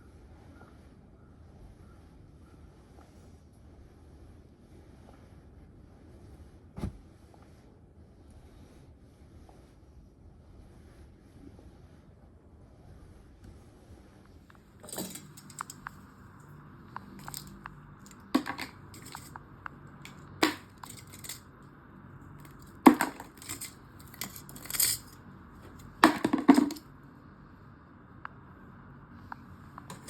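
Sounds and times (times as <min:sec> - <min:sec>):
faint background hum: 0:00.0 - 0:30.0
crinkling and rustling: 0:14.5 - 0:21.6, 0:22.4 - 0:26.9, 0:29.8 - 0:30.0.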